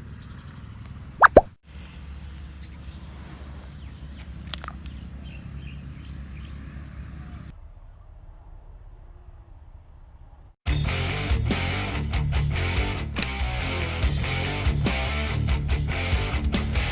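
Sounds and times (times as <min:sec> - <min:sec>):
sharp clicks: 0:13.2 - 0:13.6.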